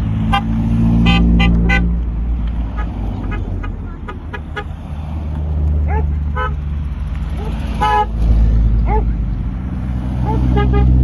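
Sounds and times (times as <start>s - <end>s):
car engines rumbling: 0.0s - 11.0s
car horns tooting: 0.2s - 2.0s, 2.6s - 4.8s, 6.3s - 6.6s, 7.4s - 8.3s, 10.2s - 11.0s.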